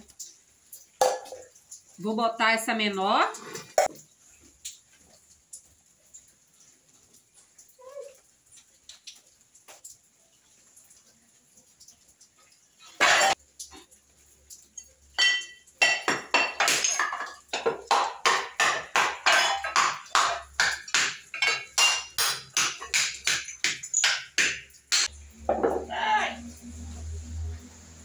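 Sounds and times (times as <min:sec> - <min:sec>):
ceramic and stone pieces clinking: 0:15.2 - 0:25.8.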